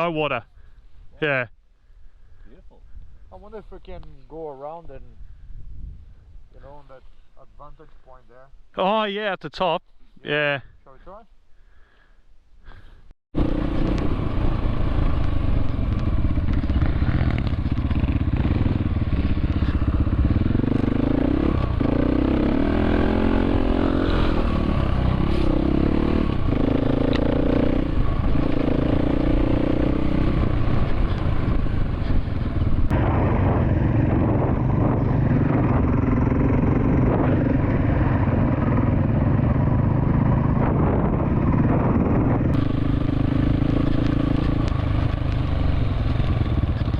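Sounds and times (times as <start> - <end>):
dirt bike engine revving: 13.4 - 46.9.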